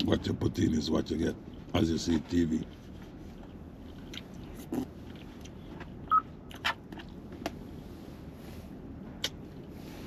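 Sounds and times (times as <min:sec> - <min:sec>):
low steady hum: 0:00.0 - 0:10.0
mouth clicks and smacks: 0:03.9 - 0:07.6, 0:09.2 - 0:09.4.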